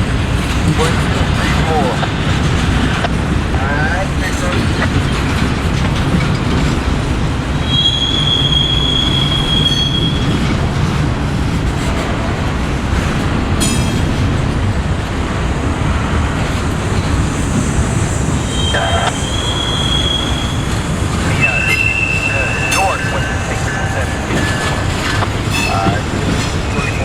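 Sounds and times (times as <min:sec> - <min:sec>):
train cars rumbling on rails: 0:00.0 - 0:27.0
train wheels squealing: 0:07.6 - 0:10.4, 0:18.4 - 0:24.8.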